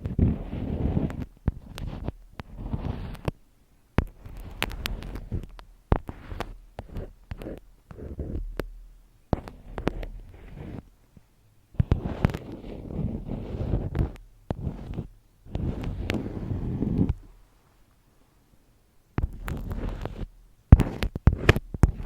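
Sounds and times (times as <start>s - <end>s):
rustling and crackling: 0.0s - 3.4s, 4.0s - 18.4s, 19.2s - 22.0s
sharp clicks and taps: 4.0s - 10.1s.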